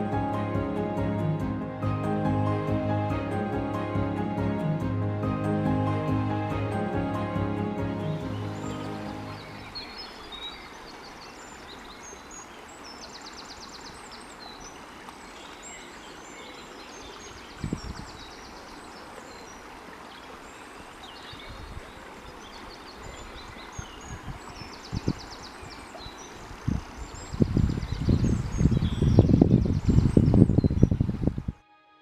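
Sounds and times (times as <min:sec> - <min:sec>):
rushing flowing water: 0:00.0 - 0:30.5
small birds chirping: 0:08.1 - 0:31.3.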